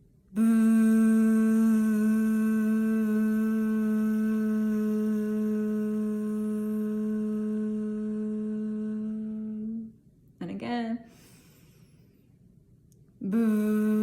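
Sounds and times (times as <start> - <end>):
woman humming: 0.3 - 10.0, 13.2 - 14.0.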